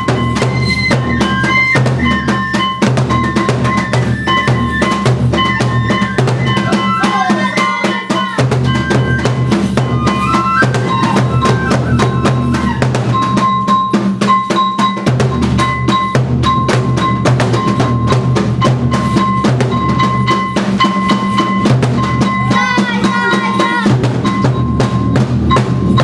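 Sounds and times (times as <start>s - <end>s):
high bamboo flute melody: 0.0s - 26.0s
rapid taiko drumming: 0.0s - 26.0s.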